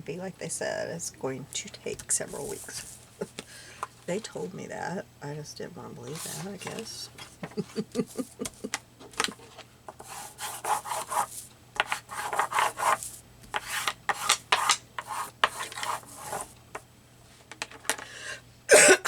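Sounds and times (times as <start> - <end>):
paper rubbed and rustled: 2.2 - 3.3, 6.0 - 7.0, 9.3 - 16.5.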